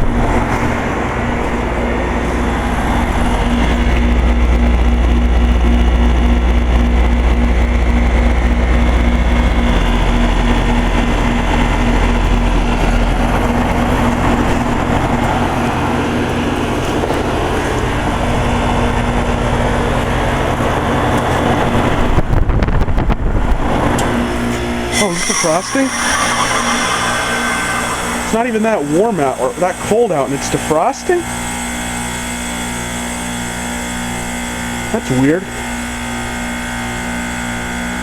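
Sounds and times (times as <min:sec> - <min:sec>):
heat pump humming: 0:23.6 - 0:32.4
broad rushing noise: 0:24.8 - 0:29.6.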